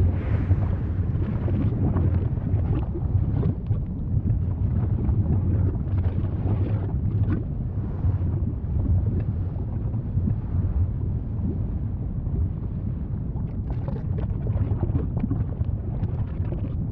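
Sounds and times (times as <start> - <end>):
volcano rumbling: 0.0 - 16.9
small crackles and pops: 1.3 - 7.5, 13.4 - 16.9.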